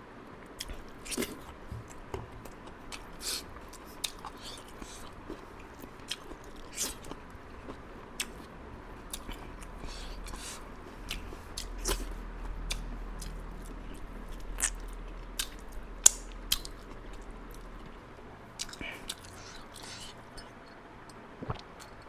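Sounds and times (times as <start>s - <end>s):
person chewing and biting: 0.6s - 8.5s, 9.1s - 17.9s.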